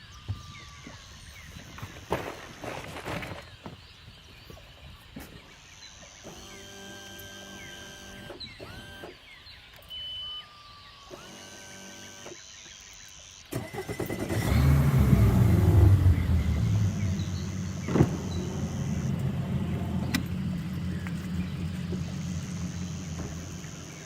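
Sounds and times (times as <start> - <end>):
engine starting and revving: 6.2 - 9.2, 13.5 - 24.0.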